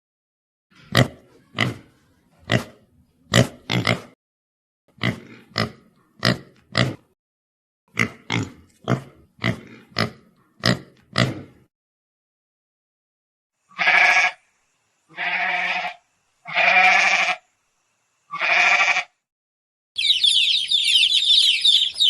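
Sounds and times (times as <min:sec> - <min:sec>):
pig grunting: 0:00.8 - 0:04.2, 0:04.9 - 0:07.2, 0:07.9 - 0:11.7.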